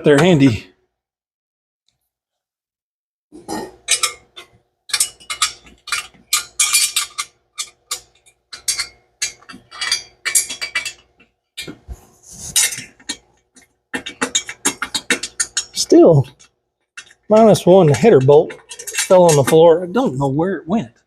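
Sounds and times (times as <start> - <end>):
wrench clinking on metal bolts: 3.9 - 11.7, 17.0 - 19.6.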